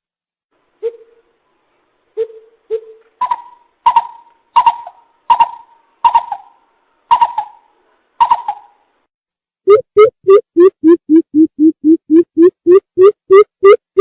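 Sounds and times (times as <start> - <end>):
coucal hooting: 0.8 - 1.3.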